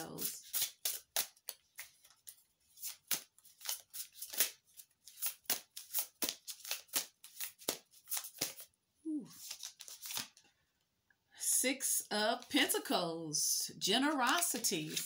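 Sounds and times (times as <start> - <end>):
cards being shuffled: 0.2 - 8.7, 9.3 - 10.5, 14.1 - 15.0.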